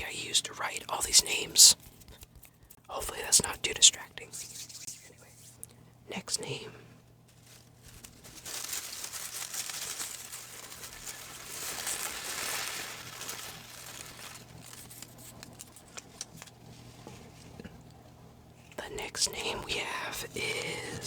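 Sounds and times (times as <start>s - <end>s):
paper slips crinkling: 7.2s - 17.4s.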